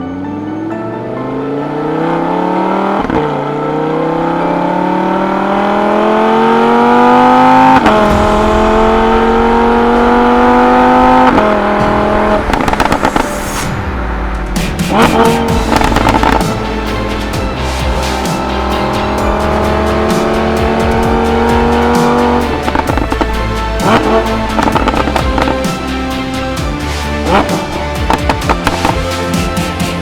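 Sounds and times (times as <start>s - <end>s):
car engine revving: 0.1s - 30.0s
exhaust pops: 7.4s - 25.8s.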